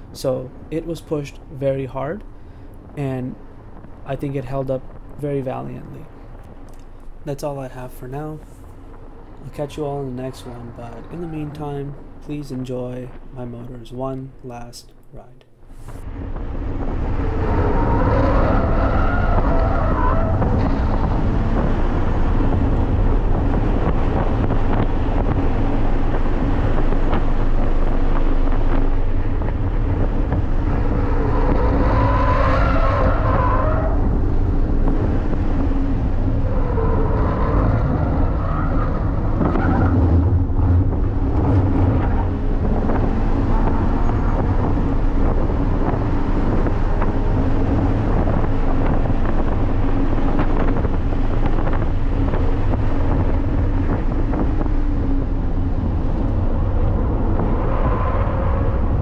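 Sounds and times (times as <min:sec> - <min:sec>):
car engine driven hard: 0:16.0 - 0:59.0.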